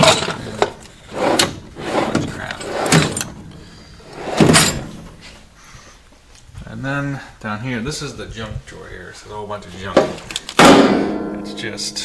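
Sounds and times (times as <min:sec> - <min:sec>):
drawers sliding open and shut: 0:00.0 - 0:05.4.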